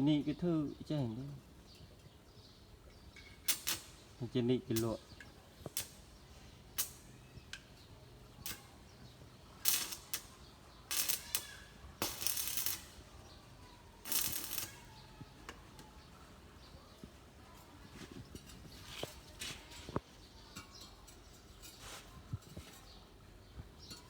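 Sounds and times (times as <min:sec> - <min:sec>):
arc welding crackle: 0:03.1 - 0:17.1.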